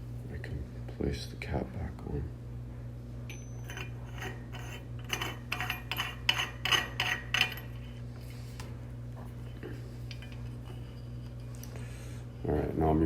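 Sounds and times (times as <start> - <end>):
steady low hum: 0.0 - 13.0
metal cap clicking and scraping: 3.6 - 7.9.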